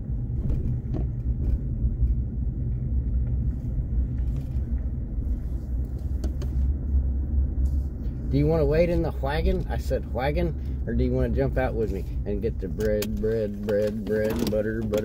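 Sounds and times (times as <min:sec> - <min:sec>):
car cabin rumble: 0:00.0 - 0:15.0
faint clicks and rattles: 0:12.5 - 0:15.0.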